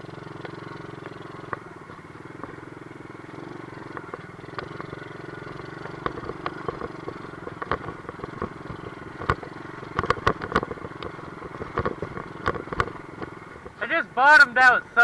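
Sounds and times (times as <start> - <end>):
bike clanking and rattling: 0.0 - 13.8
dirt bike engine running: 0.0 - 15.0
suspension bottoming out knocks: 5.6 - 13.9.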